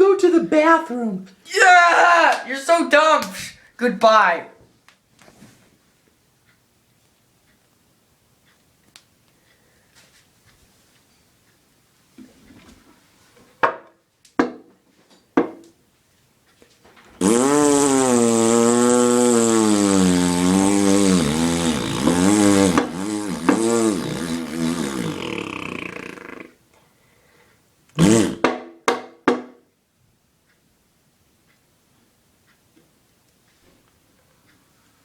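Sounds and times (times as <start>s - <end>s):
buzzy vocal warble: 17.2s - 26.6s.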